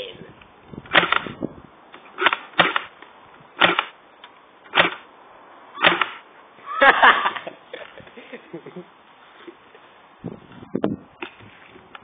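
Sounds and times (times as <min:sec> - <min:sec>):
bb gun shots: 0:00.9 - 0:01.4, 0:02.2 - 0:02.9, 0:03.6 - 0:04.0, 0:04.7 - 0:05.0, 0:05.8 - 0:06.2.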